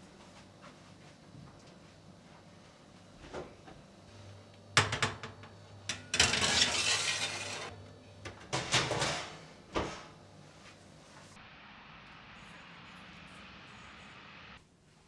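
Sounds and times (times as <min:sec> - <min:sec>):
dishes and utensils clinking: 0:04.8 - 0:07.7.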